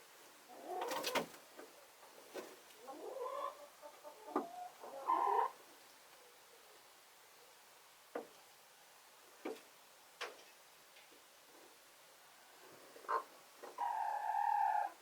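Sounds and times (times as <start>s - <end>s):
chickens calling softly: 0.5s - 6.8s, 12.4s - 15.0s.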